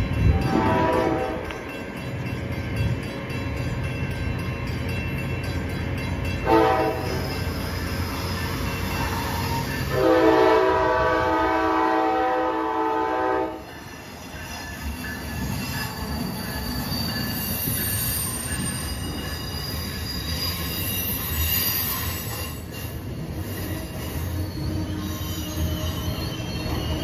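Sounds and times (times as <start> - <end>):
train rumbling past: 0.0 - 27.0
locomotive air horn: 0.4 - 1.4, 6.5 - 7.2, 9.9 - 13.7
high-pitched wheel squeal: 7.1 - 9.9, 13.9 - 27.0.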